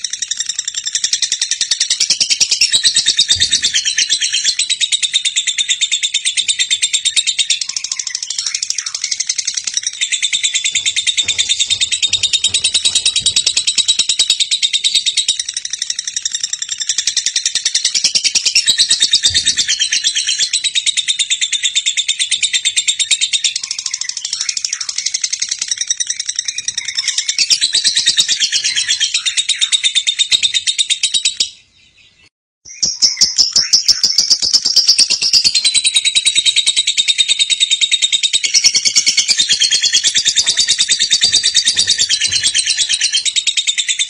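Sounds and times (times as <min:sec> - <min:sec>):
lovebird chattering: 0:33.0 - 0:44.0.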